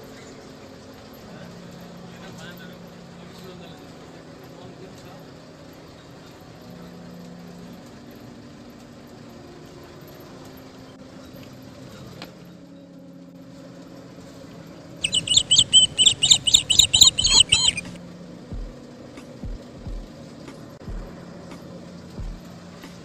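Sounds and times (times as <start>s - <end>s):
vehicle engine humming: 0.0s - 23.0s
bird chirping sharply: 15.0s - 18.0s.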